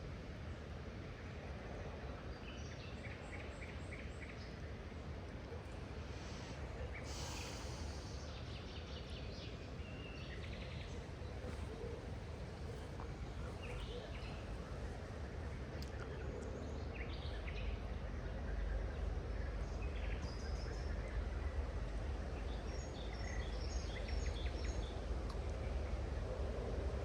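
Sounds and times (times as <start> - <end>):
low outdoor rumble: 0.0 - 27.0
hissing rush: 6.1 - 8.3.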